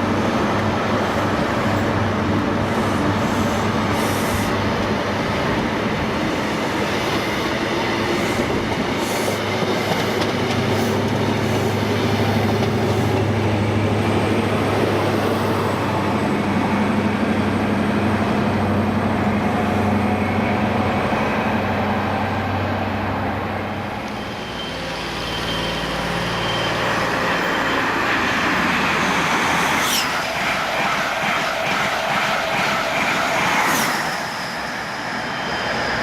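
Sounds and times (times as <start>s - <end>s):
rushing train noise: 0.0s - 36.0s
train engine low hum: 0.0s - 36.0s.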